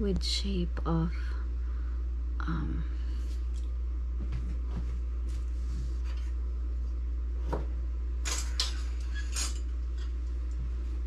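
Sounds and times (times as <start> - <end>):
low steady hum: 0.0 - 11.0
kitchen items clacking and rattling: 8.2 - 9.7.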